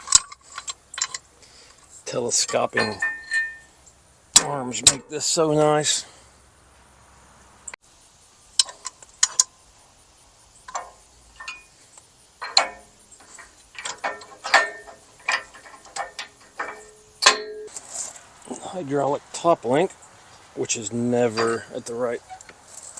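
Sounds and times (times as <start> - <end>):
metal clicks and clanks of hitch: 0.0 - 3.7, 4.3 - 5.4, 8.6 - 9.5, 10.6 - 18.7, 21.2 - 22.9.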